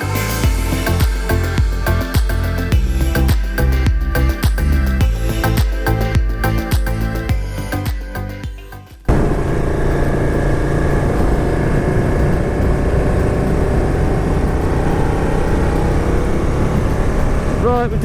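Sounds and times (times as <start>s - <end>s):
road noise: 0.0s - 8.4s, 9.1s - 18.0s
music: 0.0s - 9.4s
motorcycle engine: 0.0s - 18.0s.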